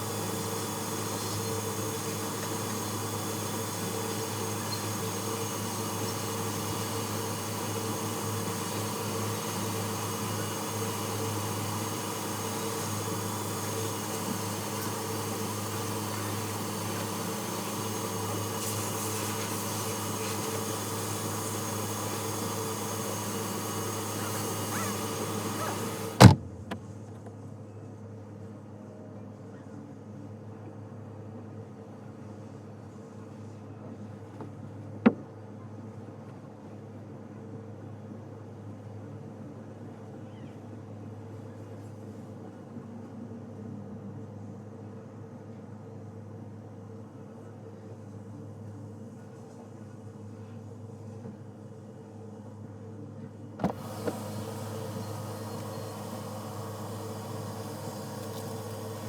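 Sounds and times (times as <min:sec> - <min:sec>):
faint hiss: 0:00.0 - 0:26.4, 0:53.6 - 0:59.0
steady mechanical hum: 0:00.0 - 0:59.0.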